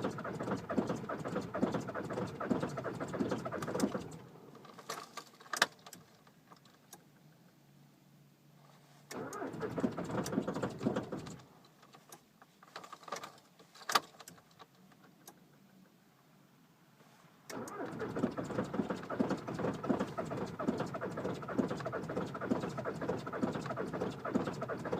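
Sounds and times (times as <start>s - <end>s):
diesel engine starting rattly: 0.0s - 4.3s, 9.1s - 11.4s, 17.5s - 24.9s.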